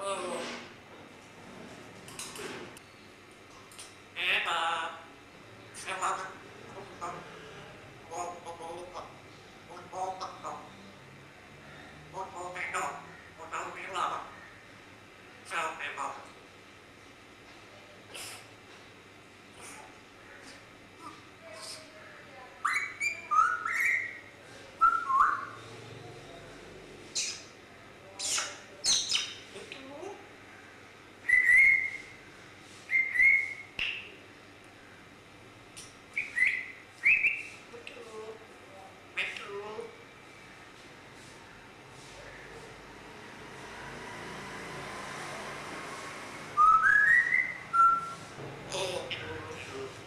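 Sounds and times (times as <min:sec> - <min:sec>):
parrot whistling: 0:22.6 - 0:24.2, 0:24.8 - 0:25.6, 0:31.3 - 0:32.1, 0:32.9 - 0:34.0, 0:36.2 - 0:37.5, 0:46.6 - 0:48.2.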